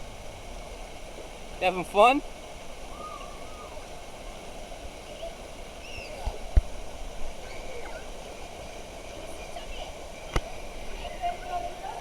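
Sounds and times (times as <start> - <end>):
running water: 0.0 - 12.0
distant children's voices: 7.3 - 12.0.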